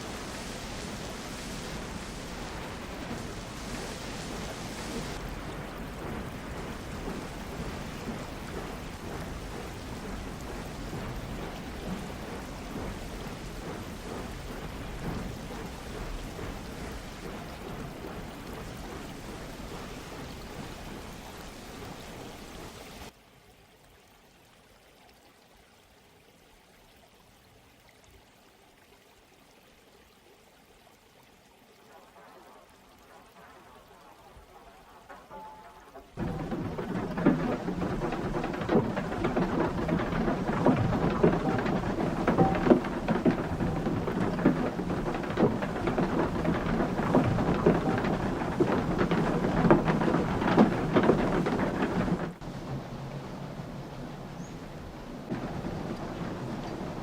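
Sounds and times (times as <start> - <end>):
knocks and clatters: 0.0 - 23.1, 33.1 - 53.1, 55.2 - 57.0
running water rushing: 0.0 - 57.0
sawmill machinery: 34.3 - 53.2.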